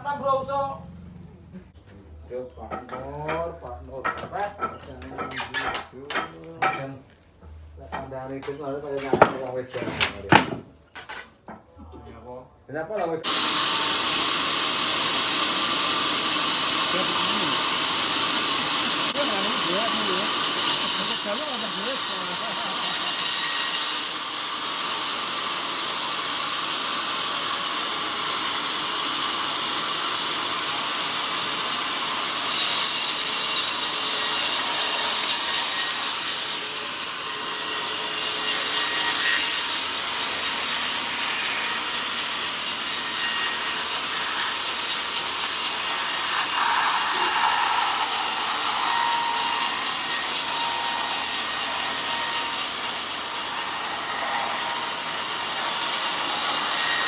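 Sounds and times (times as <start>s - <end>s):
band saw cutting through log: 4.7s - 6.3s, 13.2s - 57.0s.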